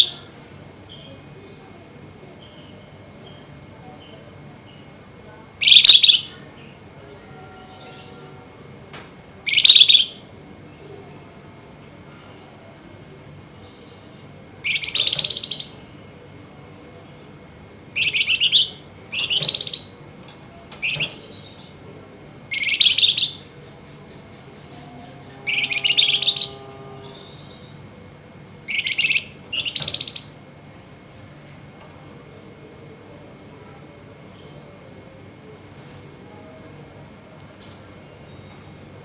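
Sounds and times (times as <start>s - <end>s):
songbird harsh rasping chatter: 14.7s - 15.8s, 25.2s - 27.7s, 28.7s - 30.4s.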